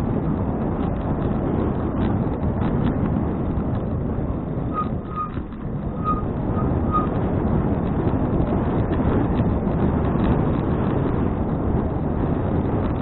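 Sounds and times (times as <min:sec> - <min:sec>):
bicycle tyre road noise: 0:00.0 - 0:13.0
wind rumbling on microphone: 0:00.0 - 0:13.0
short high chirps: 0:04.8 - 0:05.4, 0:06.0 - 0:07.1.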